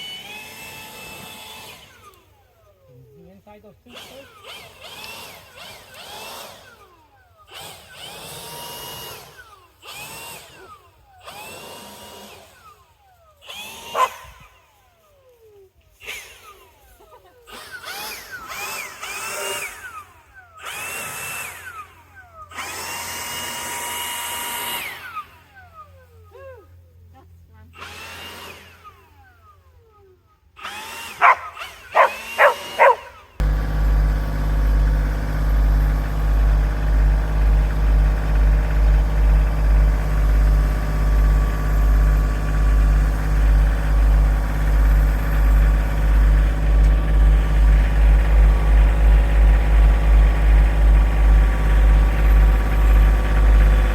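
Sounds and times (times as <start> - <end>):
cordless drill driving screws: 3.8 - 14.8, 17.5 - 25.6, 27.8 - 29.1, 30.6 - 53.9
engine idling: 31.2 - 53.9.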